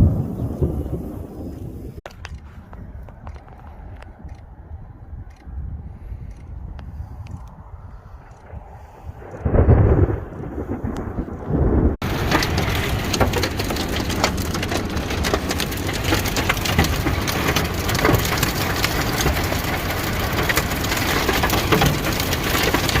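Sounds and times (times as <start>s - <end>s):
hail and heavy rain pelting: 10.6s - 23.0s.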